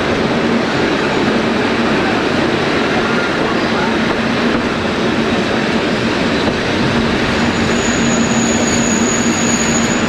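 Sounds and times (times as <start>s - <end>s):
wheels rumbling on rail: 0.0s - 10.0s
high wheel squeal: 7.2s - 10.0s.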